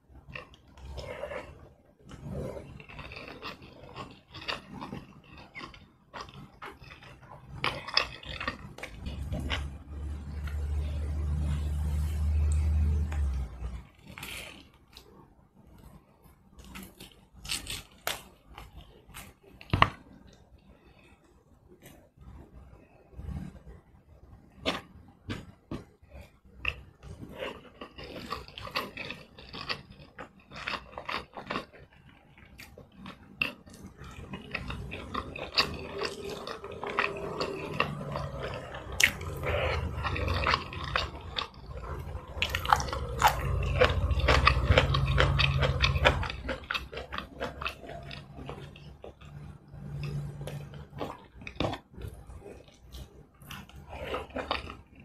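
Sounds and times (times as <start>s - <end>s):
person chewing: 0.2s - 15.1s, 15.8s - 20.4s, 24.6s - 55.0s.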